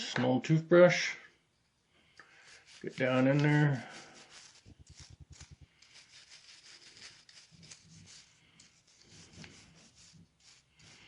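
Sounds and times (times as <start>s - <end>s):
toothbrush scrubbing: 2.2s - 11.0s.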